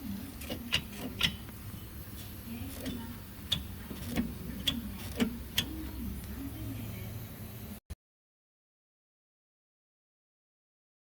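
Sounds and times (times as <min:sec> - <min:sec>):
suspension clicking: 0:00.3 - 0:01.7, 0:02.6 - 0:06.3.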